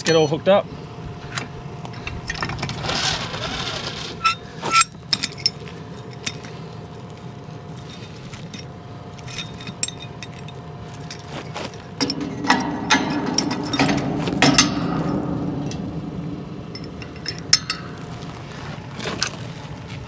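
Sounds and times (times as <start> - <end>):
engine idling with whine: 0.0 - 12.6
metal clinks of farm gear: 4.2 - 20.0.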